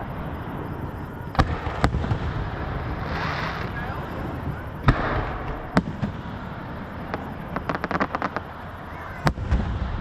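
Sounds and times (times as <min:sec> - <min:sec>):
firework booms: 0:00.0 - 0:10.0
crackling firework pops: 0:04.5 - 0:06.4, 0:07.1 - 0:08.5.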